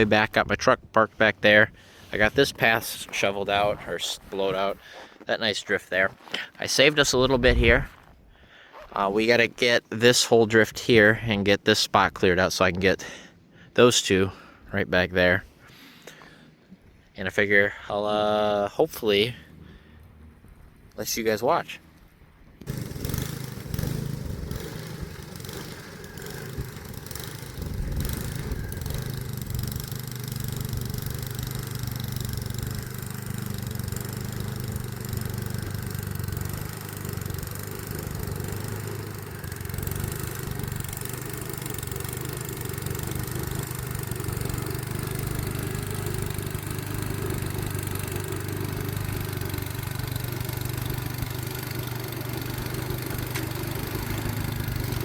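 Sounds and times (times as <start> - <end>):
snowblower engine running: 1.5 - 5.2, 22.6 - 55.0.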